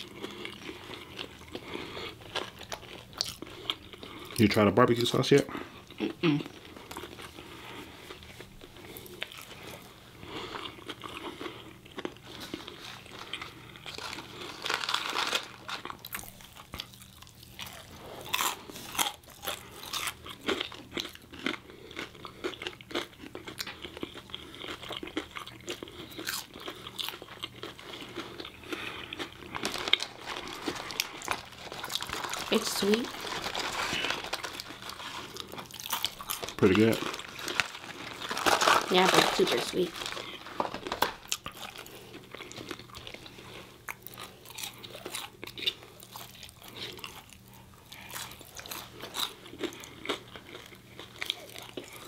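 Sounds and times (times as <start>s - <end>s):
chewing with crunches: 0.0s - 52.0s.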